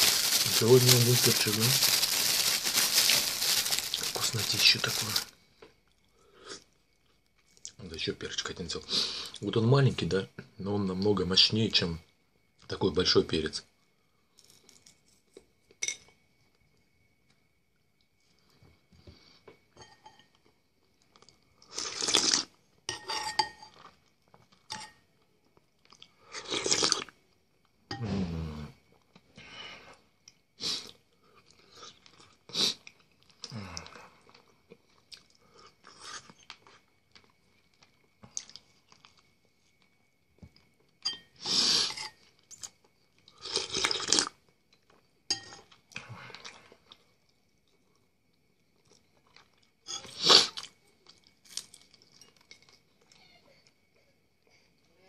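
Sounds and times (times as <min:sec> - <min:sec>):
person crunching food: 0:00.0 - 0:05.3, 0:21.1 - 0:22.5, 0:25.8 - 0:27.1, 0:42.5 - 0:44.4, 0:48.8 - 0:52.8.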